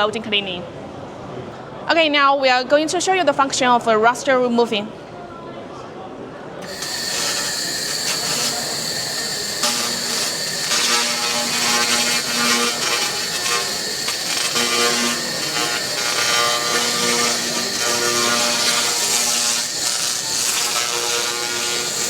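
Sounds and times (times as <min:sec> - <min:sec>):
buzzing tone: 0:06.6 - 0:22.0
laser cleaning hiss and whine: 0:06.6 - 0:22.0.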